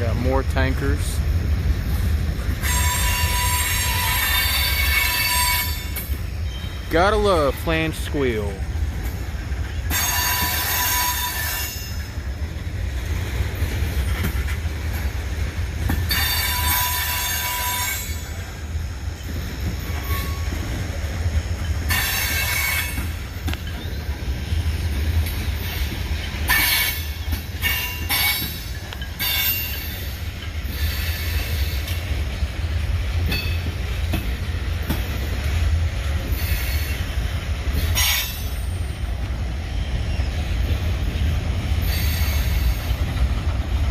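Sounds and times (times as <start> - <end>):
freight train rumbling: 0.0 - 43.9
wheel flanges squealing: 2.6 - 7.6, 9.6 - 12.3, 15.8 - 18.5, 19.1 - 32.2.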